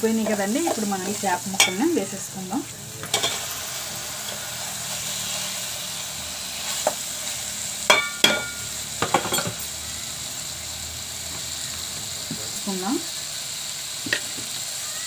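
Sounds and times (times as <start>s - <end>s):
fish frying in a pot: 0.0s - 15.0s
metal spoon knocking a pot: 7.9s - 9.6s.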